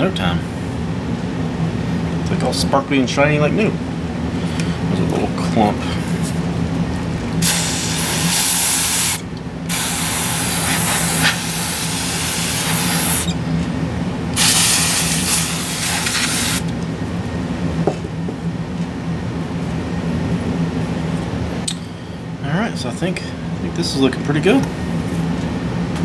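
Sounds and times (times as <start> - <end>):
spray can hissing: 7.4 - 13.4, 14.4 - 16.7.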